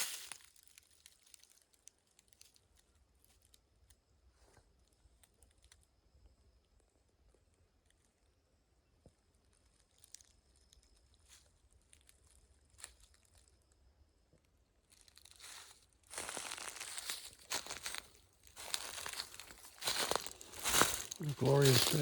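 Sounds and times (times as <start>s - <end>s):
footsteps crunching through dry leaves: 0.0s - 0.5s, 15.4s - 22.0s
faint scattered ticks: 1.1s - 18.0s.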